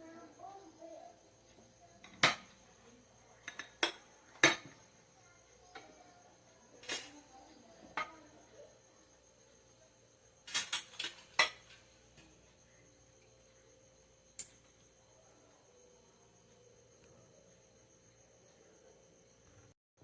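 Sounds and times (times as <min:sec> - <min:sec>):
utensils clinking against dishes: 0:06.8 - 0:07.2, 0:10.5 - 0:11.8.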